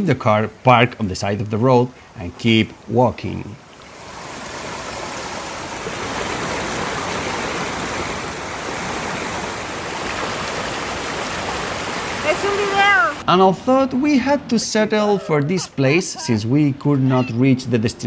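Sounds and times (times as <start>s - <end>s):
river water rushing: 0.0s - 13.2s.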